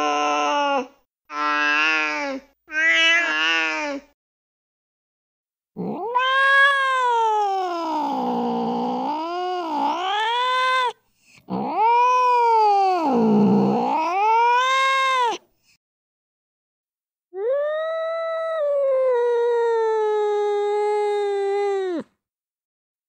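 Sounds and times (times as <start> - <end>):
cat yowling: 0.0 - 4.0, 5.8 - 15.4, 17.4 - 22.0.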